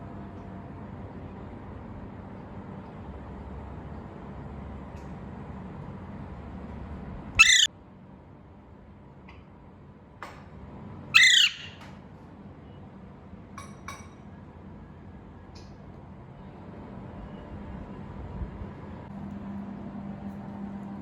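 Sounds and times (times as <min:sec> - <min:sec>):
parrot squawking: 0:07.4 - 0:07.7, 0:11.1 - 0:11.8.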